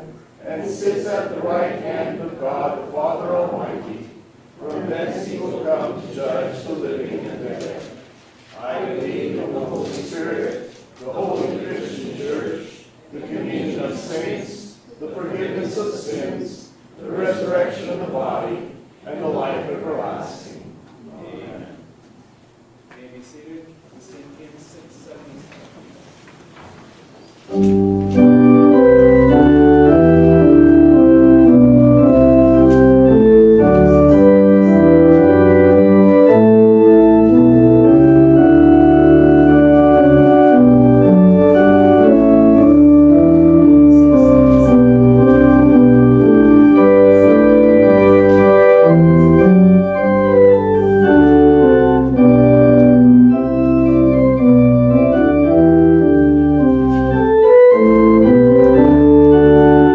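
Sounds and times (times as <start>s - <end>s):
church organ playing hymn: 0.0s - 4.0s, 27.5s - 59.9s.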